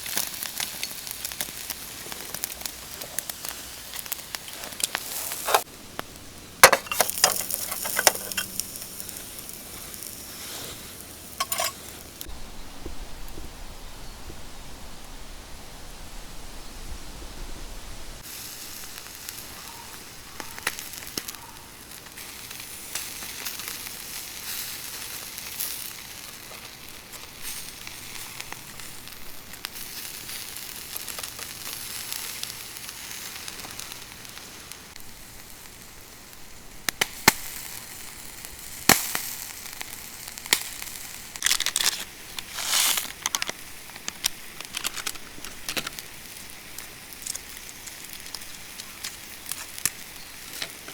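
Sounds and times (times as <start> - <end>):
food sizzling over campfire: 0.0 - 13.4, 18.0 - 50.9
fire crackling: 0.0 - 13.5, 17.9 - 50.9.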